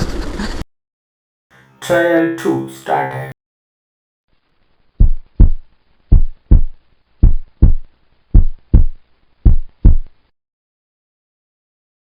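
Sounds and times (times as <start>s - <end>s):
heartbeat double thumps: 5.0s - 10.2s.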